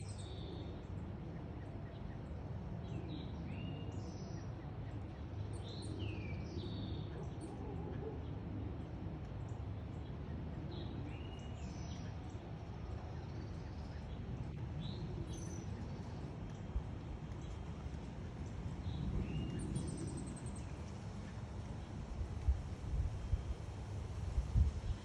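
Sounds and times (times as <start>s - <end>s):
wind buffeting microphone: 13.9s - 25.0s.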